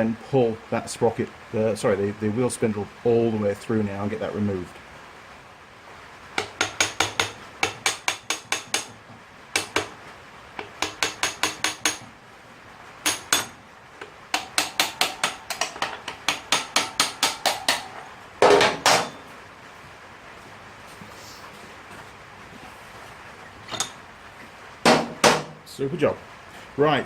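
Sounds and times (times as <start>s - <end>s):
hammer tapping metal: 6.4s - 10.0s, 10.6s - 12.0s, 13.0s - 19.3s, 24.9s - 25.6s.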